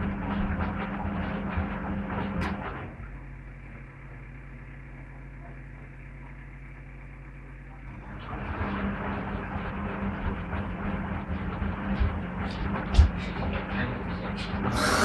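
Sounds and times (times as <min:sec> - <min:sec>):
washing machine drum turning: 0:14.7 - 0:15.0.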